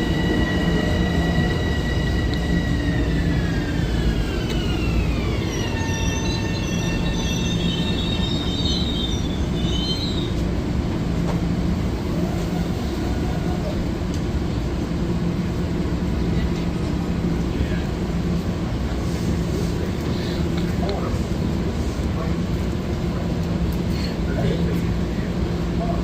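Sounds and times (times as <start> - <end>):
high wheel squeal: 0.0 - 10.4
electric train motor whine: 0.0 - 10.5
rumble of train cars: 0.0 - 26.0.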